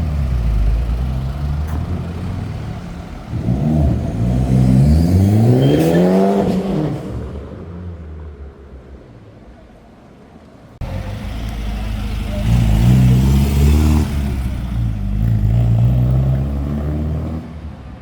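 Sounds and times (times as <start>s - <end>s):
car engine accelerating: 10.8s - 17.8s.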